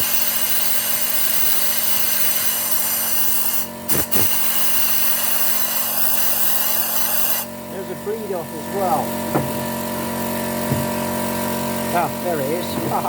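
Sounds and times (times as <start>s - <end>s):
compressed air blowgun hissing: 2.7s - 7.5s.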